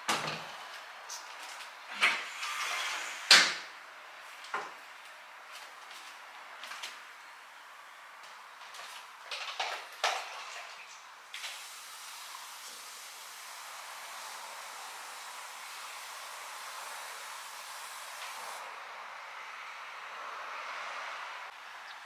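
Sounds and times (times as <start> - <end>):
steady hiss: 11.2 - 18.7.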